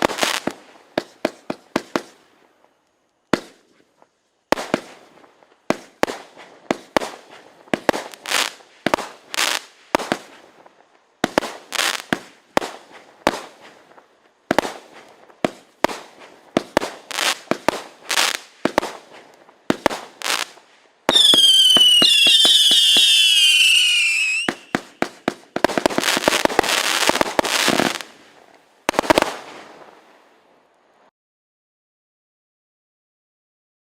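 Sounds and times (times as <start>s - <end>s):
firework bangs: 0.0s - 2.2s, 3.3s - 3.8s, 4.5s - 10.6s, 11.2s - 28.2s, 28.8s - 30.0s
firework crackling: 0.0s - 30.5s
firework whistling: 19.7s - 28.1s.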